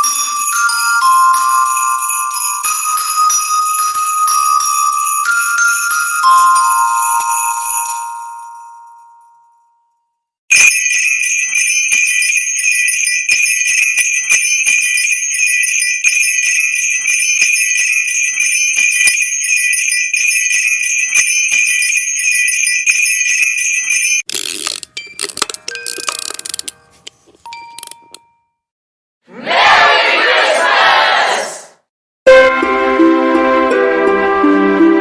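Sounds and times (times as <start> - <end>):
sleigh bells jingling: 0.0 - 8.8, 10.5 - 24.3
ringing chime tone: 0.0 - 9.8, 10.5 - 24.3.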